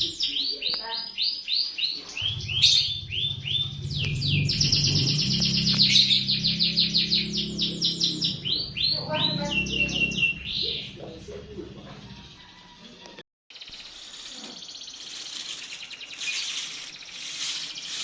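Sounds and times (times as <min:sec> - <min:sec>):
bird singing whistled notes: 0:00.0 - 0:11.0.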